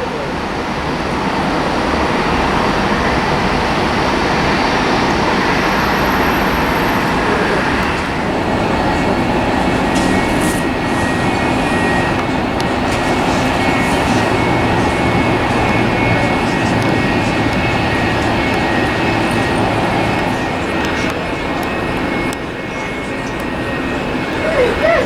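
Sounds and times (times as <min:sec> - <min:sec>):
jet engine roar: 0:00.0 - 0:25.0
wind buffeting microphone: 0:00.2 - 0:25.0
faint high whine: 0:05.0 - 0:25.0.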